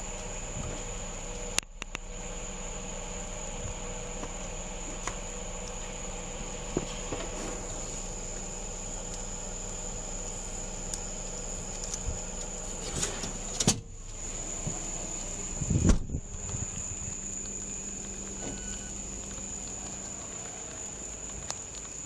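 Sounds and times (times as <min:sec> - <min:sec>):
low hum: 0:00.0 - 0:22.0
thin high constant tone: 0:07.4 - 0:22.0
faint clicks: 0:16.3 - 0:22.0.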